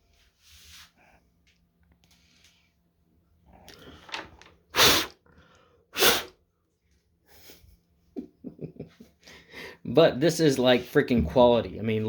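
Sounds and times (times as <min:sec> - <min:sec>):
forceful breath bursts: 0:04.7 - 0:06.3.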